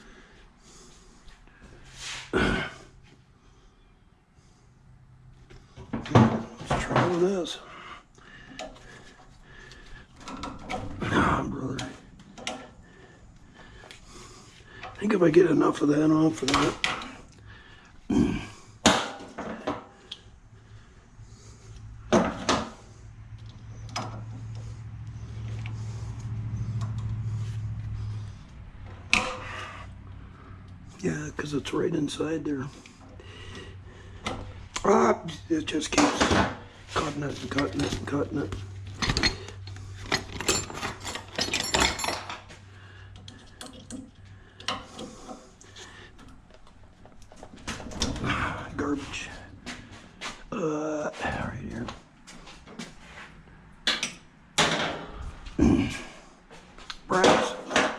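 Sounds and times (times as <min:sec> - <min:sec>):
low hum: 0:20.0 - 0:35.9
metal parts knocking and clicking: 0:38.9 - 0:42.5
metal scrap and tools clinking: 0:38.9 - 0:42.6.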